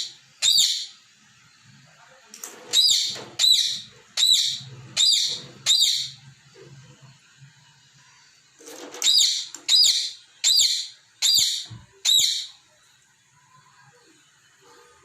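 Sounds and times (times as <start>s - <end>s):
parrot shrill chirps: 0.4s - 1.0s, 2.7s - 6.2s, 9.0s - 12.6s.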